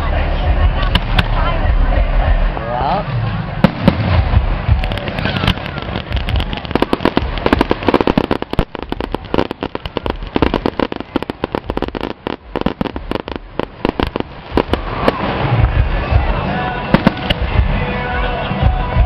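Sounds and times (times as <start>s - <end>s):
fireworks crackling and banging: 0.8s - 1.4s, 3.6s - 19.0s.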